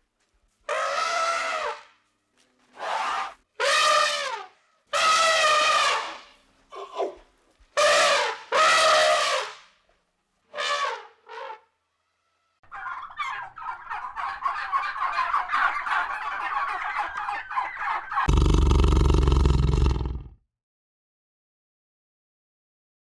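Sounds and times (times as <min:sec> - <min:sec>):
rapid chattering gobble-like calls: 0:12.6 - 0:18.4
animal calls: 0:12.6 - 0:20.3
loud deep roar: 0:18.3 - 0:20.3.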